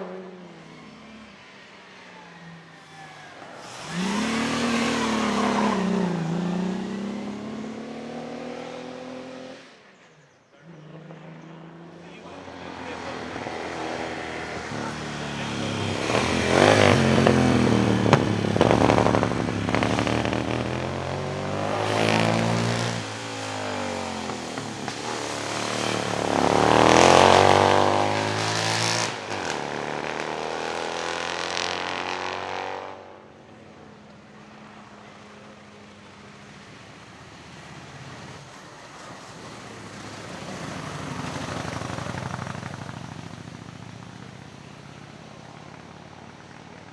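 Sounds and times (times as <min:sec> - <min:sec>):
racing car engine revving: 0:02.2 - 0:09.8, 0:10.7 - 0:33.3.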